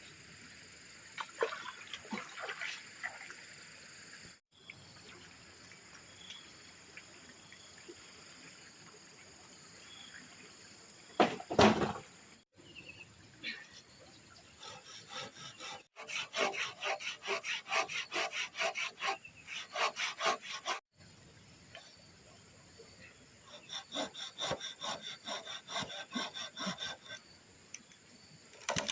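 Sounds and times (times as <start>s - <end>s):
hand saw cutting wood: 14.6s - 20.9s, 23.5s - 27.2s.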